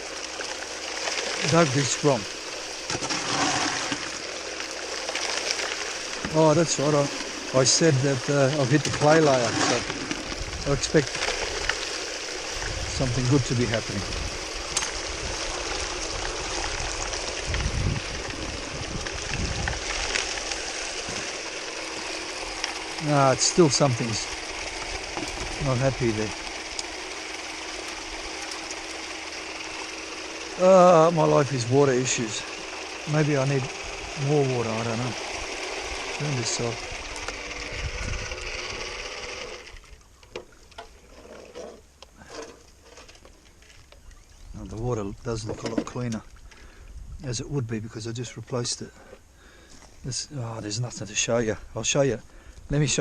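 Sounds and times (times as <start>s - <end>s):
faint steady hum: 0.0s - 53.0s
water running through rig: 0.0s - 53.0s
wind rumble on microphone: 9.7s - 11.1s, 12.6s - 20.1s, 37.0s - 38.8s, 44.4s - 47.8s.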